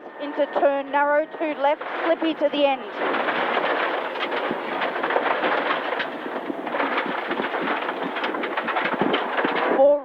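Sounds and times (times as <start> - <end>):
tyre and road noise: 1.7 - 10.0
gravel hitting car underbody: 3.0 - 9.8.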